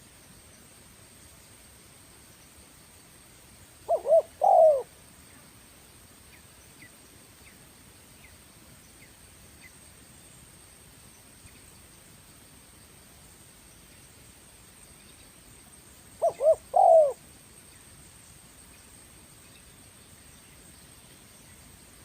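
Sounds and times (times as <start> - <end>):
dove cooing: 3.9 - 4.9, 16.2 - 17.3.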